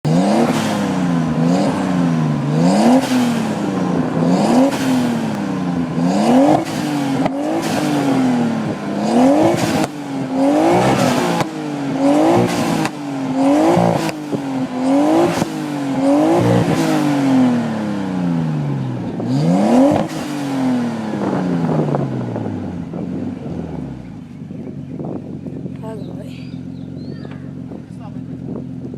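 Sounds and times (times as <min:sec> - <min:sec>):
car engine revving: 0:00.0 - 0:28.9
exhaust pops: 0:02.4 - 0:17.5, 0:26.6 - 0:28.9.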